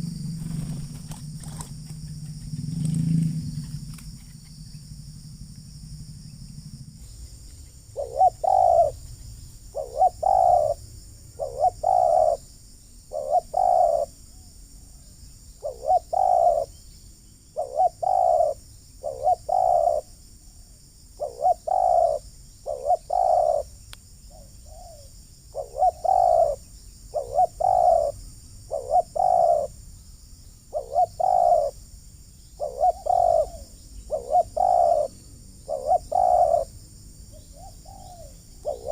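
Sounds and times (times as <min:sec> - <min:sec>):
dove cooing: 0:00.0 - 0:04.0, 0:07.9 - 0:09.0, 0:09.7 - 0:12.4, 0:13.1 - 0:15.0, 0:15.6 - 0:16.8, 0:17.5 - 0:20.2, 0:21.2 - 0:29.8, 0:30.7 - 0:31.8, 0:32.6 - 0:38.9.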